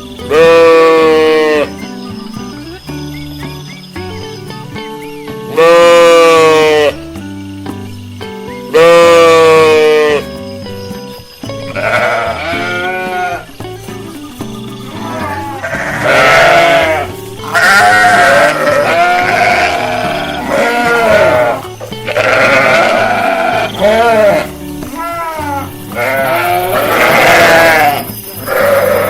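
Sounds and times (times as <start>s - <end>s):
background music: 0.0s - 29.0s
sheep bleating: 0.2s - 1.8s, 5.5s - 7.0s, 8.7s - 10.2s, 11.7s - 13.5s, 14.9s - 29.0s.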